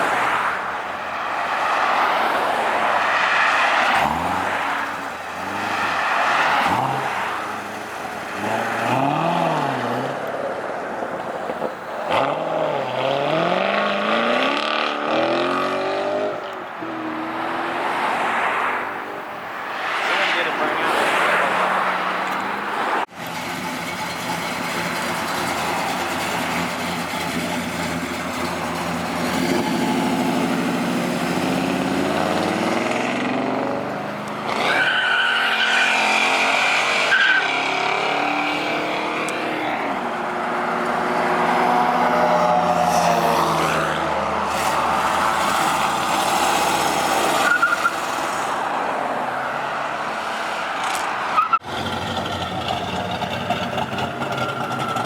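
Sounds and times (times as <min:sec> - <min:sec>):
car engines revving: 0:00.0 - 0:55.0
tyre squeal: 0:34.5 - 0:38.8, 0:47.2 - 0:48.0, 0:53.8 - 0:55.0.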